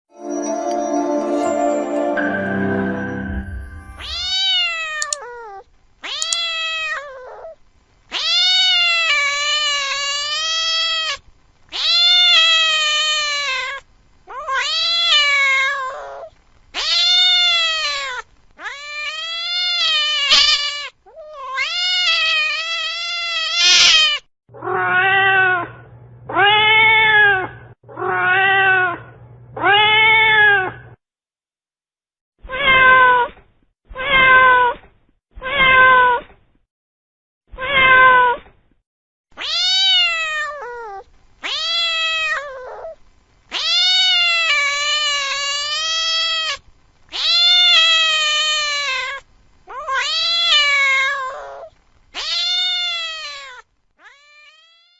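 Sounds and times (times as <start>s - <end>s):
cat yowling: 4.0s - 30.8s, 32.4s - 33.4s, 34.0s - 34.8s, 35.4s - 36.2s, 37.5s - 38.4s, 39.4s - 54.9s.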